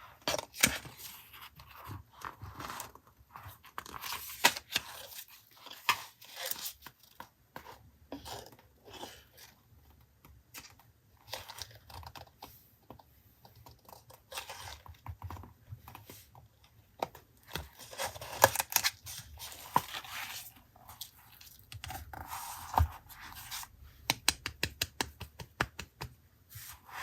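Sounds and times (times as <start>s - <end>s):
paper rustling and scraping: 17.5s - 23.8s
small taps and clicks: 24.0s - 26.2s.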